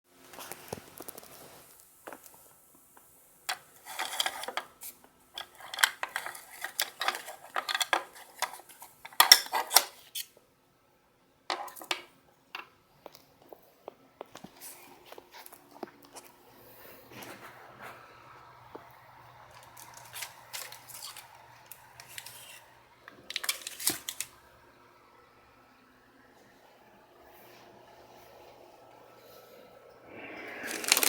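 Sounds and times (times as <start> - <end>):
small objects clattering and rustling: 3.5 - 10.2, 19.5 - 24.3, 30.6 - 31.0.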